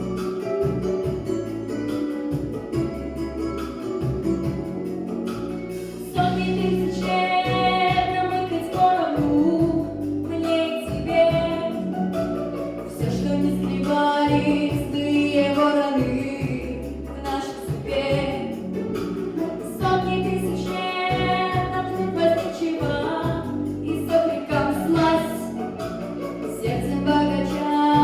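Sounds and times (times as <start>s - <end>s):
pop backing track: 0.0s - 28.0s
girl singing: 6.0s - 11.8s, 13.0s - 18.7s, 19.7s - 25.6s, 26.5s - 28.0s.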